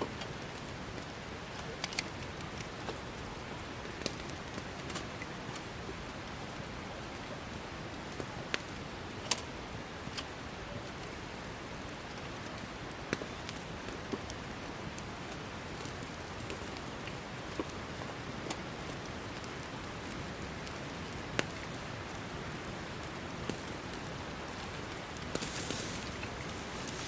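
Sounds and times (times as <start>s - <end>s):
campfire crackling and popping: 0.1s - 27.0s
fire hissing: 23.6s - 27.0s.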